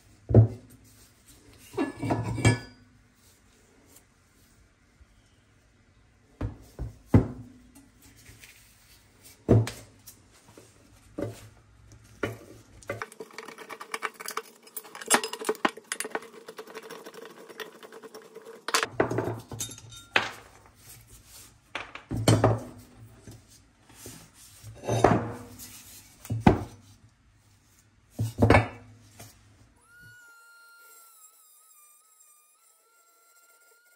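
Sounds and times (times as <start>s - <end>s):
screwdriver scraping and grinding: 13.0s - 18.9s
metal parts clinking and knocking: 13.0s - 20.5s.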